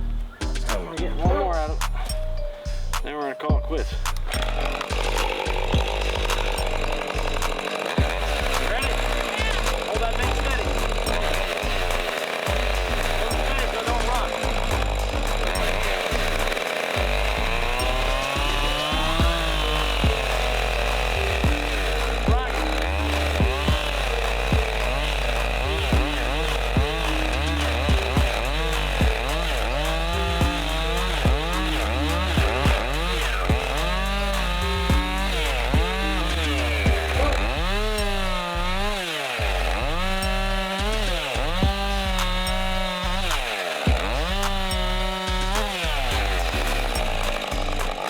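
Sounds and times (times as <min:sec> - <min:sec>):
chainsaw cutting log: 0:00.0 - 0:48.0.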